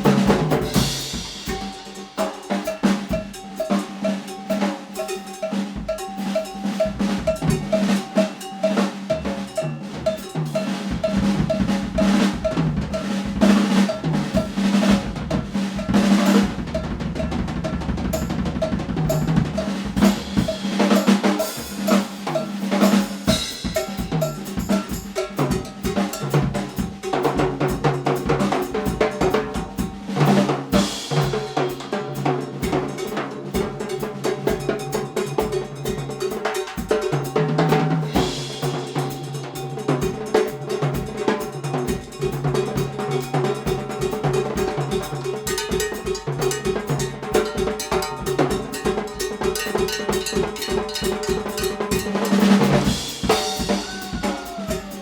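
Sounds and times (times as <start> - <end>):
bass drum: 0.0 - 1.8, 6.8 - 7.8, 10.9 - 30.1, 43.7 - 55.0
cowbell pattern: 0.0 - 55.0
snare drum hits: 52.6 - 55.0.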